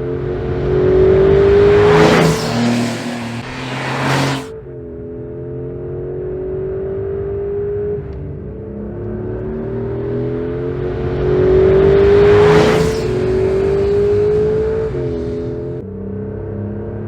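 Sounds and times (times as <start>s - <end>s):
car engine accelerating: 0.0s - 17.0s
wind and tyre noise: 0.0s - 17.0s.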